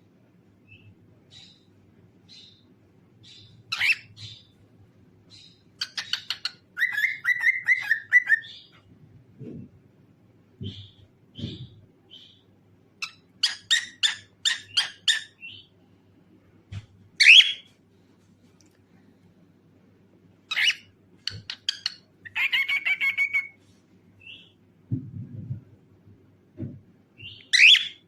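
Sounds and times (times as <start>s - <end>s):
cockatiel chirping and singing: 3.3s - 4.6s, 5.3s - 8.8s, 13.0s - 15.7s, 17.2s - 17.7s, 20.5s - 23.6s, 27.2s - 28.0s.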